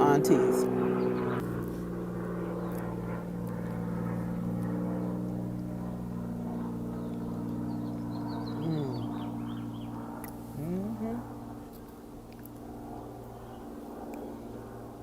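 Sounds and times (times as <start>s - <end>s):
motor drone: 0.0s - 15.0s
faint bird chirps: 7.0s - 10.0s.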